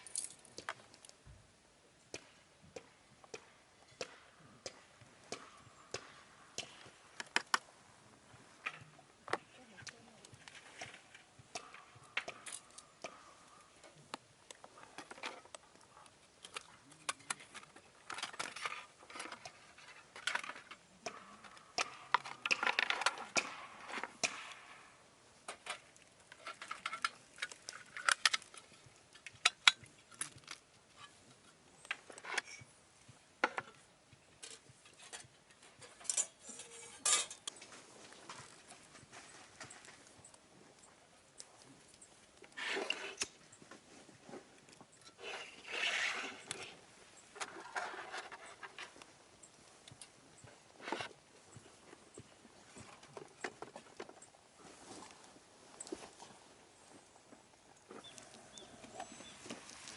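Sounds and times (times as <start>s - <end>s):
metal cookware clinking: 36.0s - 37.4s.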